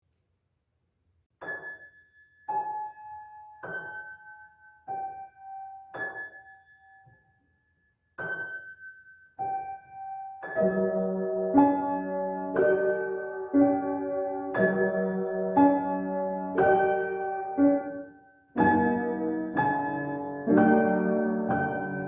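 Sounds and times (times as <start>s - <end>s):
piano playing high notes: 10.4s - 22.0s.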